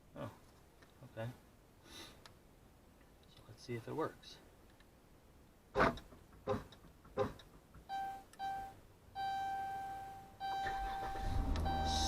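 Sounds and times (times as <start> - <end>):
car electronic chime: 7.9 - 12.0
car engine cranking and starting: 10.4 - 12.0.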